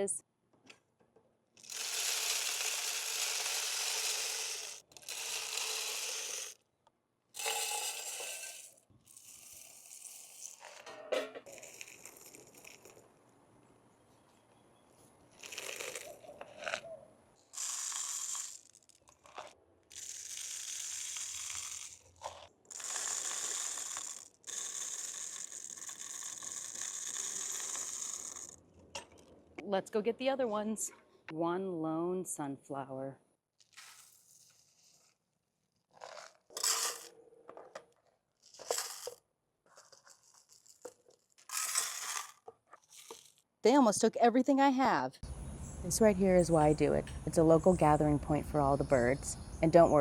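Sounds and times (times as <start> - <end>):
bird seed pouring into a feeder: 1.6 - 6.6, 17.6 - 22.0, 22.7 - 28.6, 36.0 - 37.1, 39.9 - 43.4.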